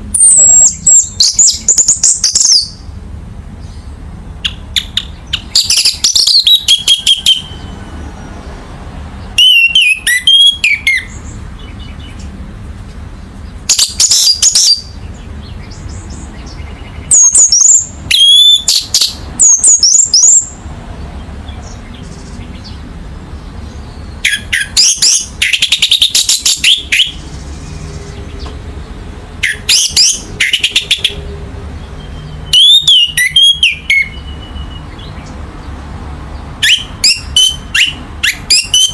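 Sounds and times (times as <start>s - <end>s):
thrush singing whistled notes: 0.1s - 2.9s, 4.4s - 8.4s, 9.3s - 12.3s, 13.7s - 20.6s, 23.6s - 28.4s, 29.4s - 31.2s, 31.8s - 35.4s, 36.6s - 38.9s.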